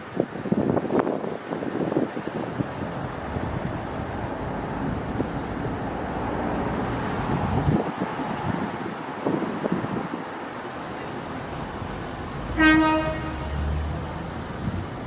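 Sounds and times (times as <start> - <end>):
wind buffeting microphone: 0.0 - 15.0
vehicle rumbling past: 2.6 - 9.1, 10.4 - 15.0.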